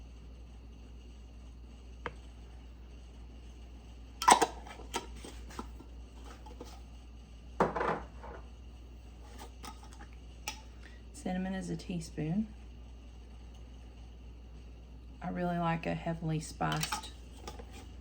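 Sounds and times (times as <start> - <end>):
faint steady hum: 0.0 - 18.0
kitchen utensils clinking: 4.2 - 6.8, 16.7 - 17.9.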